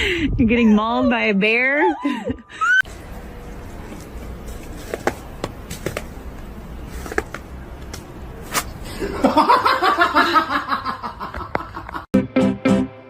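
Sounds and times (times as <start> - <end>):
person laughing: 0.9 - 2.8, 8.9 - 12.1.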